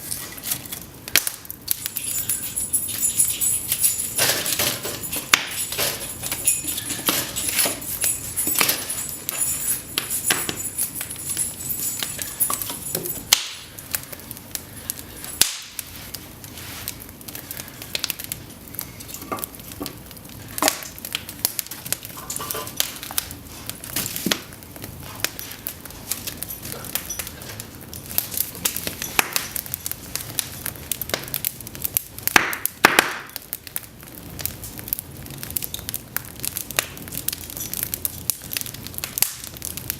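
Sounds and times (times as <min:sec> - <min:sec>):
fire crackling and popping: 0:00.0 - 0:39.9
logs snapping in fire: 0:00.1 - 0:02.0, 0:13.3 - 0:16.2, 0:16.8 - 0:39.9.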